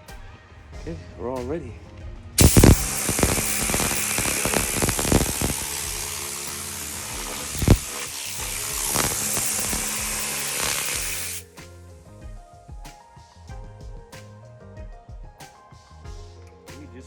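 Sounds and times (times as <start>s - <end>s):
background music: 0.0s - 17.0s
spray gun hissing: 2.4s - 11.5s.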